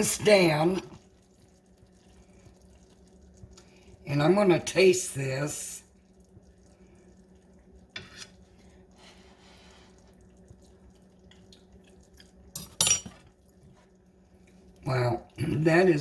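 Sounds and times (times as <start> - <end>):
faint steady hum: 0.0 - 16.0
spoon clinking against pot: 12.6 - 13.2.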